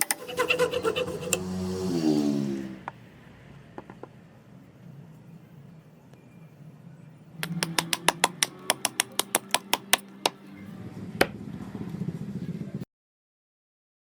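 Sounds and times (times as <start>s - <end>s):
rapid sharp taps: 7.4s - 10.4s.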